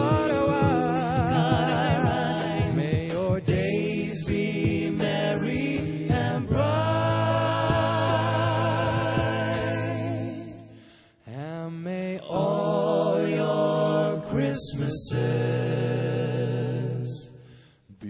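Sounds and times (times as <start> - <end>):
voices singing a cappella chords: 0.0 - 18.0.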